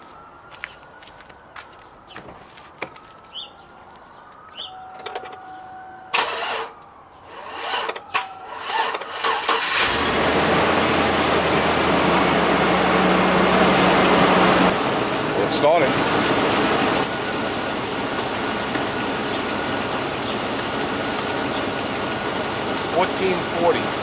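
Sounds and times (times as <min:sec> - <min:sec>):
engine cranking: 0:06.1 - 0:06.7, 0:07.3 - 0:10.2
engine idling: 0:08.6 - 0:24.0.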